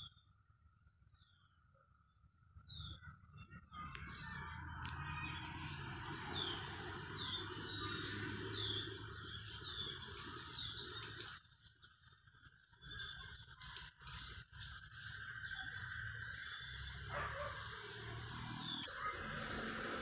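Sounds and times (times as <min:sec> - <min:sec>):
high insect tone: 0:00.0 - 0:20.0
birds falling chirps: 0:02.8 - 0:20.0
sharp clicks: 0:03.8 - 0:05.7.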